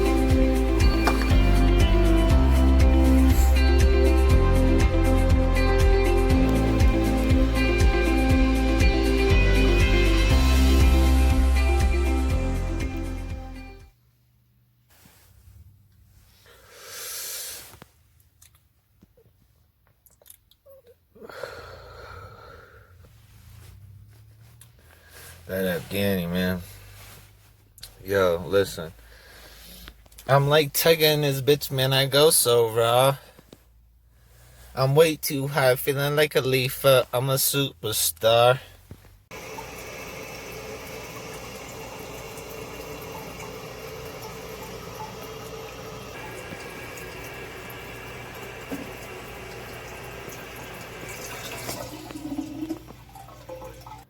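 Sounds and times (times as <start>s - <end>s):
person breathing hard: 16.4s - 17.8s, 21.2s - 23.1s, 29.0s - 30.0s.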